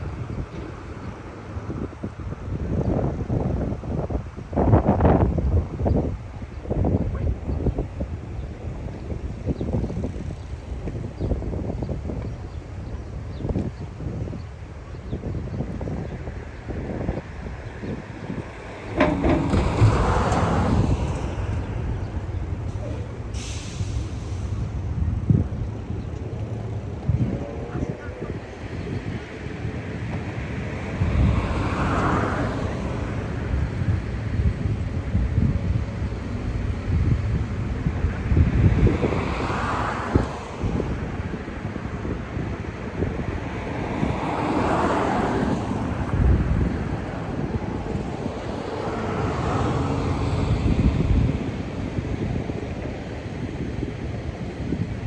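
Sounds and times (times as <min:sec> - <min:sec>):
road traffic passing: 0:00.0 - 0:55.0
wind buffeting microphone: 0:00.0 - 0:55.0
bus engine running: 0:00.3 - 0:27.7, 0:28.4 - 0:55.0
short thump: 0:18.8 - 0:23.1
air brake hiss: 0:22.8 - 0:24.8.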